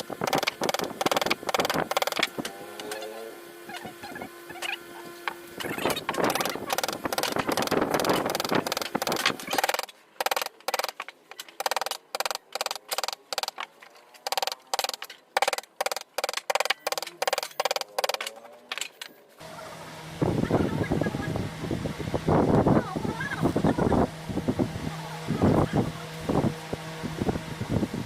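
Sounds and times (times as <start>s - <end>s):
carving tool scraping wood: 0.0s - 2.3s.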